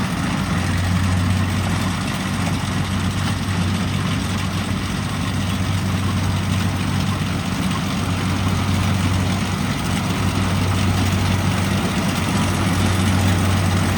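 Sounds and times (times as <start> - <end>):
combine harvester engine hum: 0.0 - 13.9.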